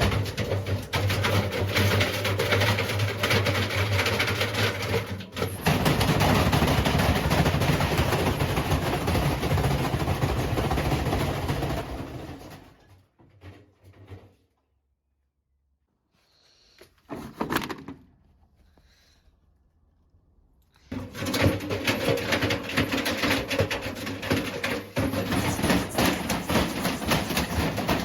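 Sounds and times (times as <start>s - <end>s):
washing machine rattling and knocking: 0.0s - 14.4s, 20.9s - 28.0s.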